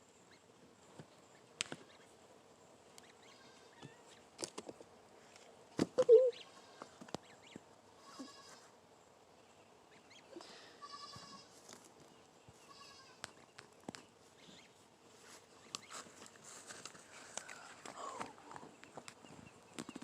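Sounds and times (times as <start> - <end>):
farm animal calling: 6.0 - 8.7, 9.9 - 11.6, 12.6 - 13.2.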